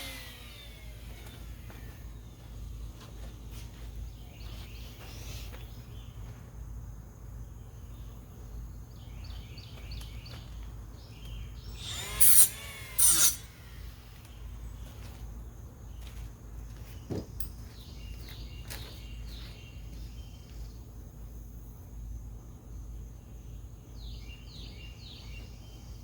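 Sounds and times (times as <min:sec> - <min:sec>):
power tool whirring: 0:00.0 - 0:02.4, 0:11.5 - 0:15.2
steady low hum: 0:00.0 - 0:26.0.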